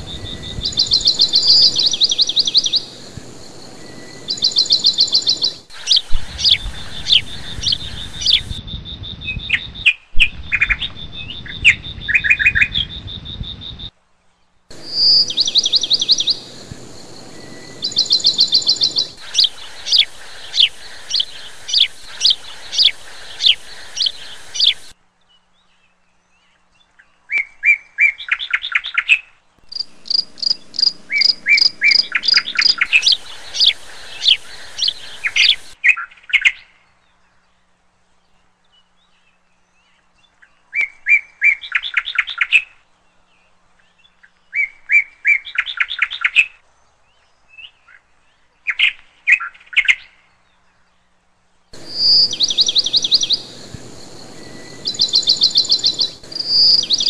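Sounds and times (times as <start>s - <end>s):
steady hiss: 0.0s - 8.6s, 14.0s - 25.0s, 29.6s - 35.8s, 51.7s - 57.0s
songbirds singing: 0.0s - 57.0s.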